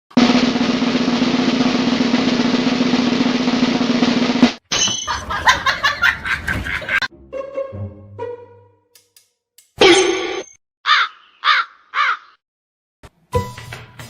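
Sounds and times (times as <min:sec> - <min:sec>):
snare drum roll: 0:00.1 - 0:04.6.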